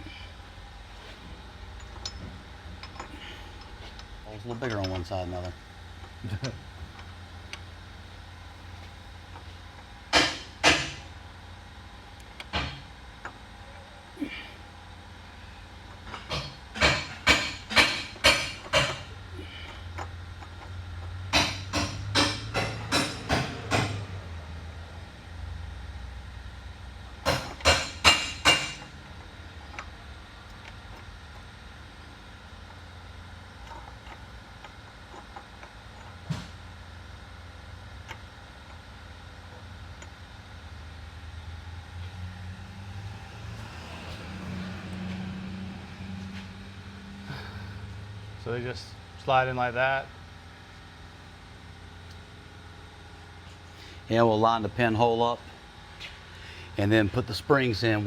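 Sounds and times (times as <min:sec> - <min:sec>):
steady low hum: 0:00.0 - 0:58.0
metal parts clicking and tapping: 0:01.8 - 0:07.6, 0:16.0 - 0:24.0, 0:27.2 - 0:28.9
sharp metal-on-metal taps: 0:16.3 - 0:19.0, 0:21.3 - 0:24.0, 0:27.2 - 0:28.9.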